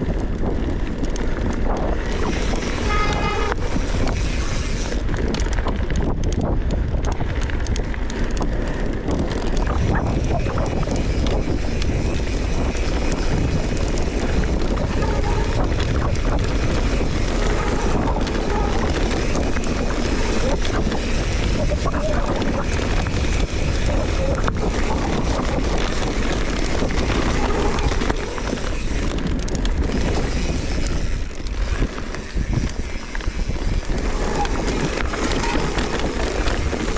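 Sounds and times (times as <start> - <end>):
bike rattles and knocks: 0.0 - 36.9
wind buffeting microphone: 0.0 - 36.9.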